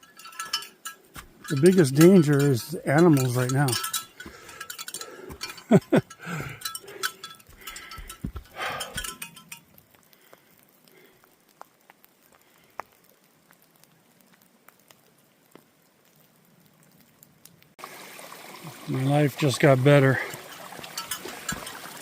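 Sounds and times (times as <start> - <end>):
bells jingling: 0.0 - 9.7, 19.4 - 22.0.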